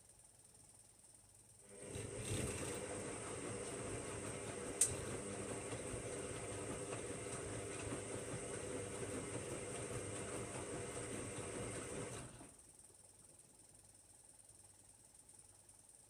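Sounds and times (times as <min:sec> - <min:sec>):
washing machine humming: 0:01.6 - 0:12.8.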